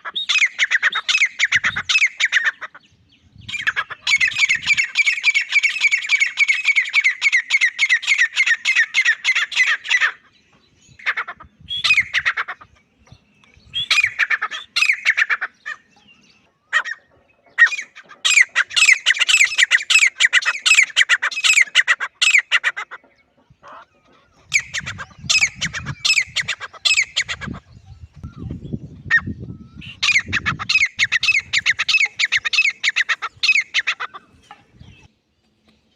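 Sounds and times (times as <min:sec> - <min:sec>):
bird calling harsh repeated notes: 0:00.0 - 0:02.8, 0:03.5 - 0:10.3, 0:13.8 - 0:15.9, 0:16.7 - 0:23.0, 0:23.7 - 0:27.6, 0:29.0 - 0:34.4.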